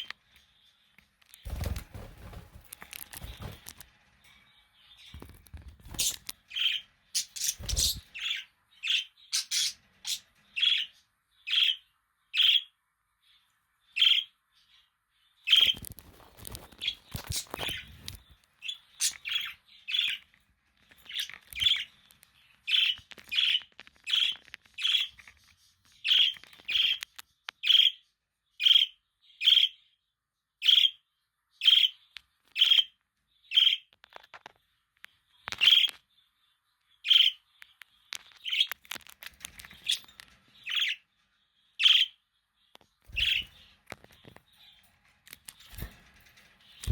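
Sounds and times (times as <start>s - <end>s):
budgerigar chirping: 6.0s - 10.9s.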